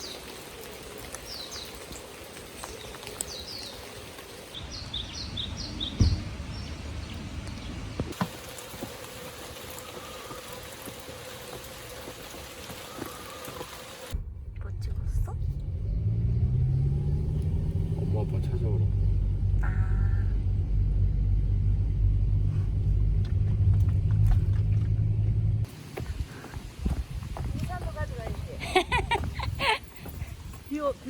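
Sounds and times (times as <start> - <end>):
rain falling: 0.0 - 14.2, 23.2 - 31.0
bird chirping: 2.6 - 8.0.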